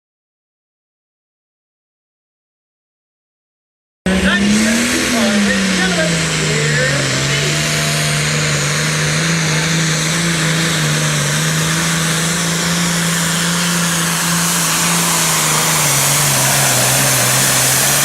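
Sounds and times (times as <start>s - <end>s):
diesel engine running at high revs: 4.1s - 18.0s.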